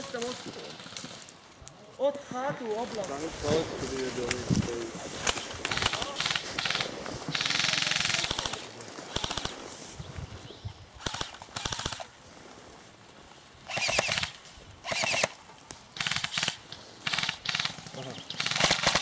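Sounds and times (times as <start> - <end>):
airsoft guns firing bursts: 5.2 - 9.7, 11.0 - 12.1, 13.7 - 15.4, 16.0 - 19.0.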